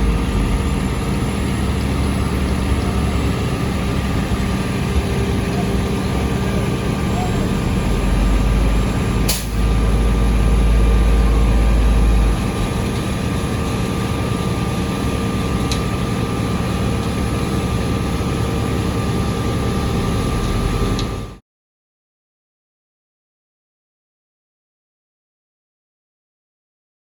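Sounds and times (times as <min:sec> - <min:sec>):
diesel paving machine rumbling: 0:00.0 - 0:21.4.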